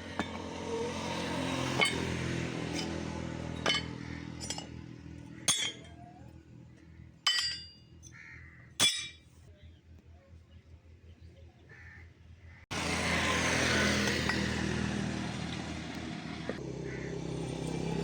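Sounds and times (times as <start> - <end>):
metal clinks: 1.7 - 3.0, 3.6 - 4.8, 7.2 - 8.0.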